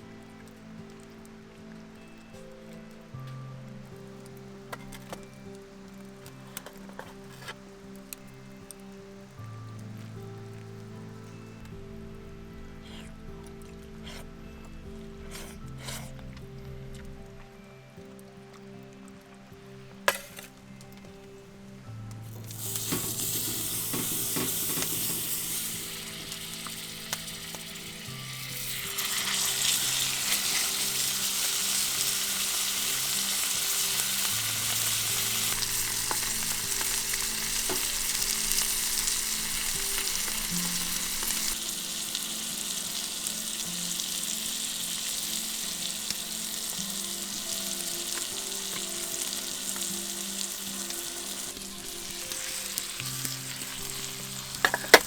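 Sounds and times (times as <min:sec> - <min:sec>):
meat sizzling in a hot pan: 0:22.3 - 0:55.0.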